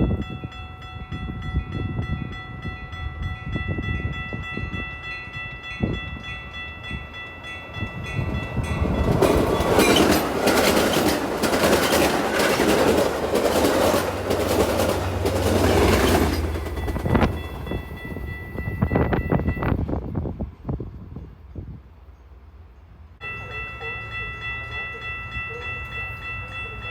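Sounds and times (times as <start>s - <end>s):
train wheels clattering on rail: 6.9s - 19.8s.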